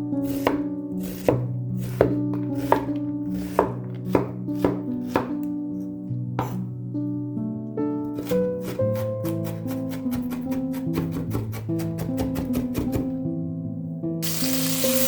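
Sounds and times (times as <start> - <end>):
background music: 0.0 - 15.0
knife chopping on cutting board: 0.2 - 5.5, 6.4 - 6.6, 8.2 - 13.2.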